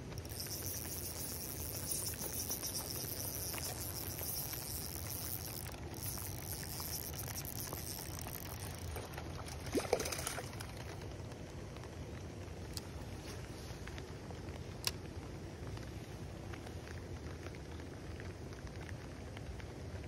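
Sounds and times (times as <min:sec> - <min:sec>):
rain falling on a pond: 0:00.0 - 0:20.0
high-pitched chirring: 0:00.2 - 0:08.9
fish splashing in water: 0:00.2 - 0:11.0.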